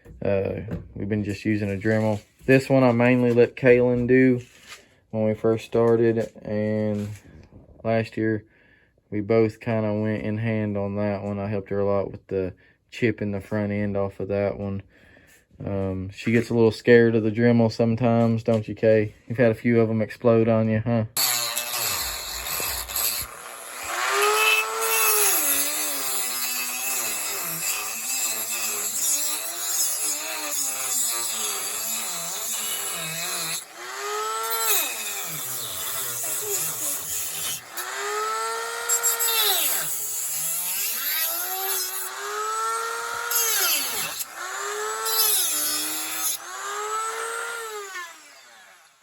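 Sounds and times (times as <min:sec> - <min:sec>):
rotary tool cutting wood: 0:21.2 - 0:49.0.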